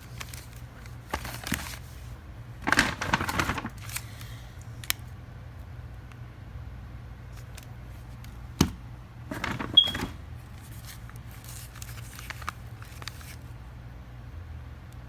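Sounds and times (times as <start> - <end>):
rustling and clattering: 2.6 - 3.9, 9.3 - 13.0.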